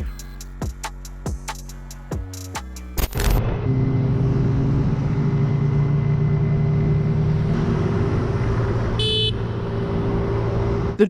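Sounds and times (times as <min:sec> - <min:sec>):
vehicle engine running: 0:03.2 - 0:11.0
road and wind noise: 0:03.3 - 0:11.0.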